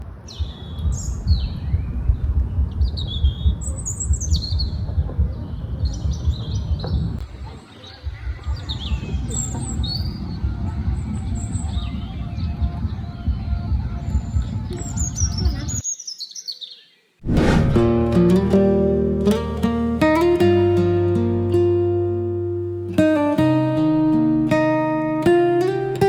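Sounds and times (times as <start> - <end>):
birds chirping: 0.0 - 17.2
low rumble: 17.2 - 18.2.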